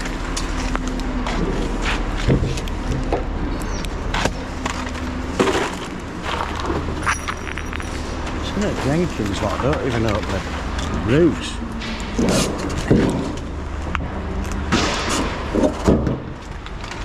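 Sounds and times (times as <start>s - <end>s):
lorry engine idling: 0.0s - 14.7s
knocks and clatters: 11.8s - 17.0s.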